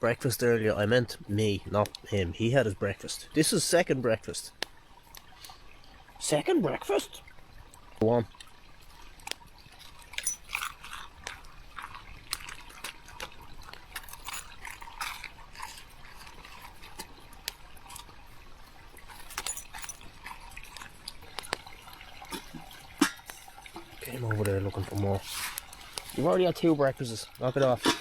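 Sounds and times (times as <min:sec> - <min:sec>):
dog chewing and lip-smacking: 0:08.4 - 0:18.2, 0:20.0 - 0:22.6.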